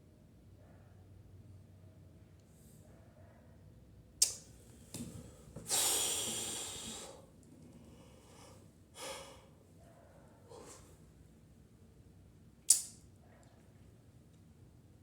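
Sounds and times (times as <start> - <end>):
person breathing: 5.7 - 7.3, 7.9 - 9.6, 10.5 - 10.9.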